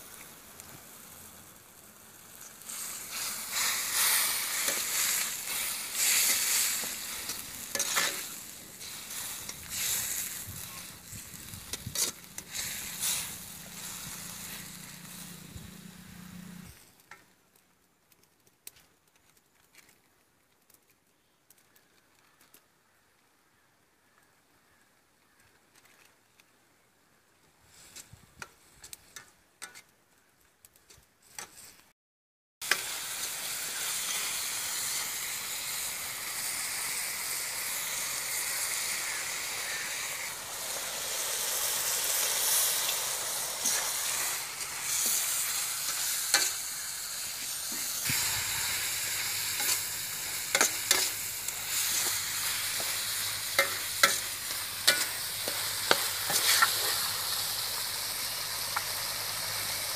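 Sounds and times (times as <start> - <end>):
chicken sizzling in oil: 0.0 - 16.7, 32.6 - 59.9
metal spatula scraping pan: 3.1 - 10.4, 49.5 - 57.0.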